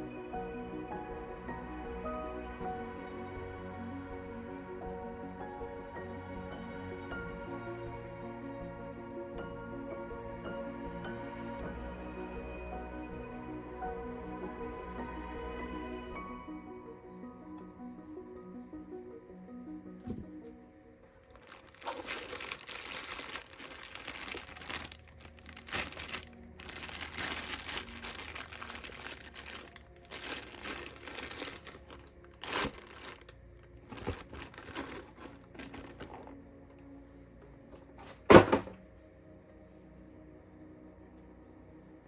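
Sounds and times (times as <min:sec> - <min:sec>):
packaging crinkling: 0:21.2 - 0:36.4.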